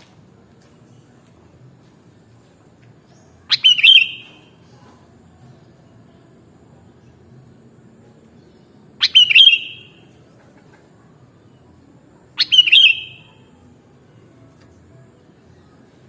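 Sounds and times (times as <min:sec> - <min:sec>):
bulbul calling: 0:03.5 - 0:04.5, 0:09.0 - 0:10.1, 0:12.4 - 0:13.4.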